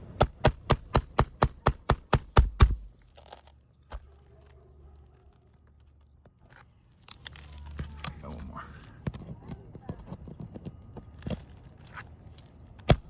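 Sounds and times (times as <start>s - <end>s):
hammer striking steel tool: 0.0s - 2.9s.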